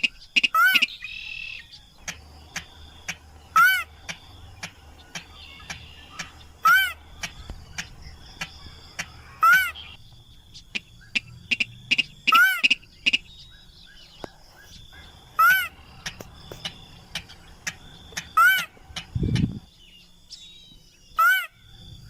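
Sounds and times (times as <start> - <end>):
rail bird calling: 0.0 - 22.0
sharp clicks: 2.0 - 3.3, 4.0 - 6.5, 7.2 - 9.2, 16.0 - 19.6.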